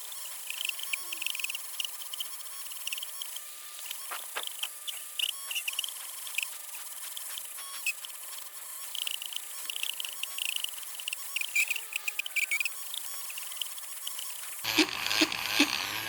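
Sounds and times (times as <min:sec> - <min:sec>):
electric polishing tool buffing: 0:14.3 - 0:16.0.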